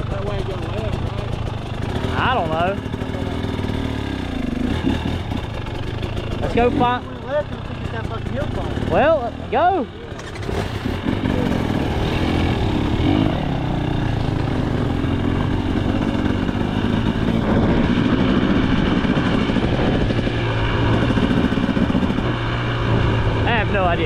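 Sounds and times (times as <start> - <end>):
dirt bike engine running: 0.0 - 24.0.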